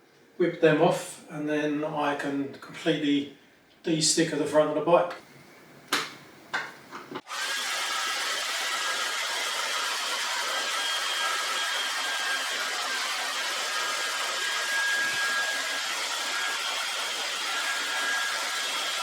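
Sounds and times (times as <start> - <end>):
electric blower rushing air: 7.2 - 19.0.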